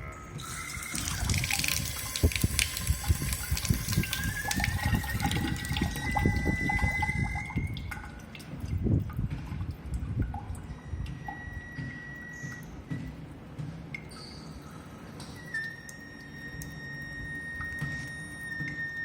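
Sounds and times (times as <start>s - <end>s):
water running from faucet: 0.4s - 8.2s
water dripping: 0.4s - 13.0s, 13.9s - 19.0s
thin high-pitched whistle: 5.9s - 7.8s.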